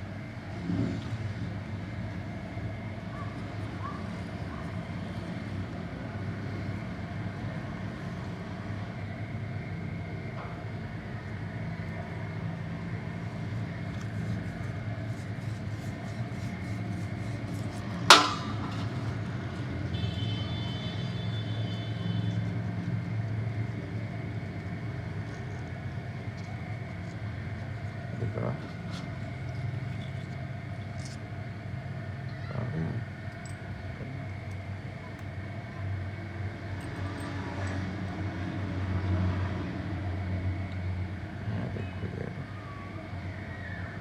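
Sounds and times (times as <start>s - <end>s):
low mechanical hum: 0.0s - 44.0s
loud metallic clang: 18.1s - 19.2s.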